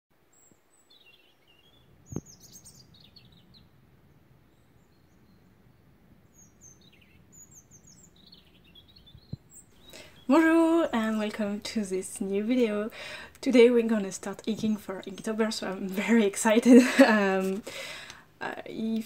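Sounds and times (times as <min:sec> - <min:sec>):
faint birdsong: 0:00.2 - 0:19.0.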